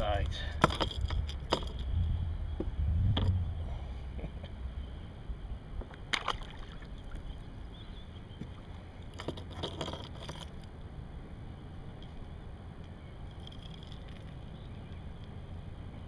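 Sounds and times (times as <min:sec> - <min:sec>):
kayak knocks and clicks: 0:00.6 - 0:01.9
low rumble: 0:01.0 - 0:05.8.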